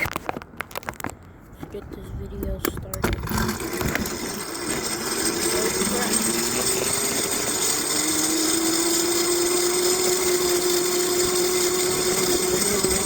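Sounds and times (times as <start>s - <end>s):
electric bike motor whining: 3.0s - 13.0s.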